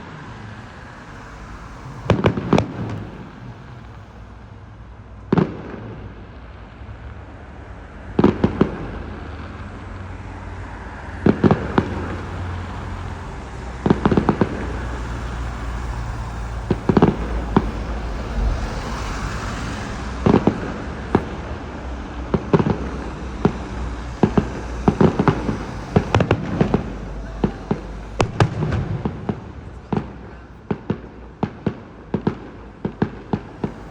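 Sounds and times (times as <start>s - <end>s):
low rumble: 0.0s - 5.1s, 9.8s - 31.2s, 32.7s - 33.9s.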